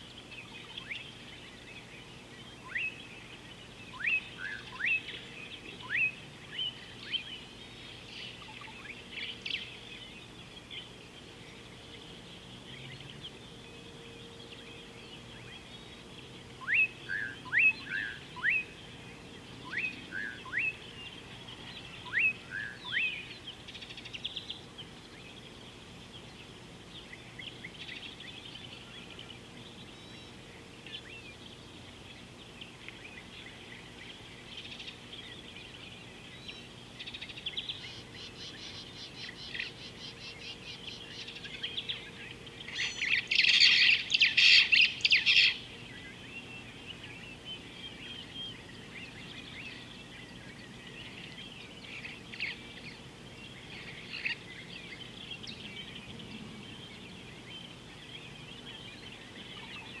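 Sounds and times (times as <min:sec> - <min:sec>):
birds chirping: 0:00.0 - 1:00.0
high bird trill: 0:36.5 - 0:49.9.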